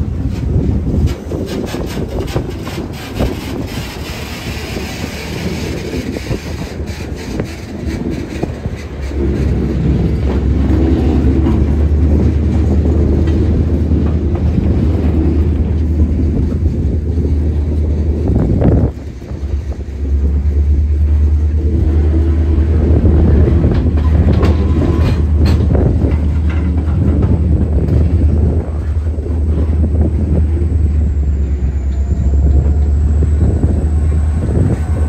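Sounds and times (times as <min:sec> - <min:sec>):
diesel locomotive engine drone: 0:00.0 - 0:35.0
train wheels clicking over rail joints: 0:00.0 - 0:35.0.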